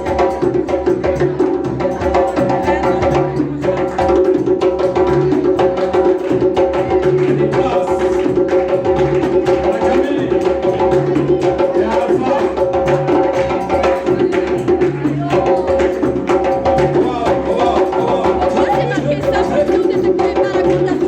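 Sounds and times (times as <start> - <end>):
fast percussion beat: 0.0 - 21.0
live band music: 5.1 - 21.0
repeating bass line: 6.8 - 21.0.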